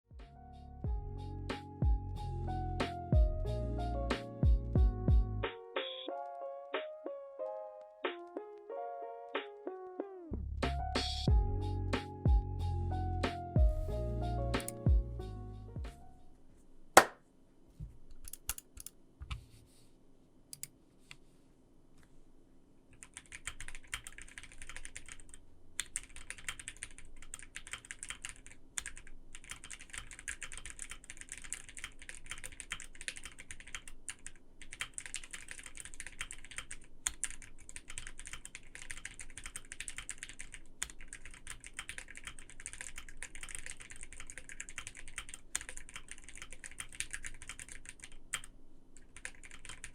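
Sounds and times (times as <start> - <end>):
typing on mechanical keyboard: 18.2 - 18.9, 23.0 - 49.9.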